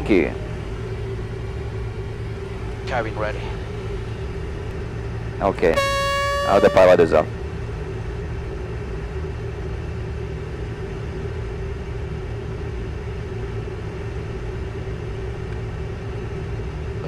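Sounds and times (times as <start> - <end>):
constant hum: 5.8 - 7.2.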